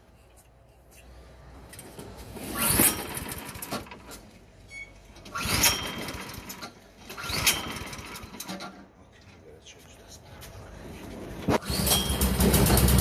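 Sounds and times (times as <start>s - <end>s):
snowblower engine cranking: 5.2s - 8.8s, 11.6s - 13.0s.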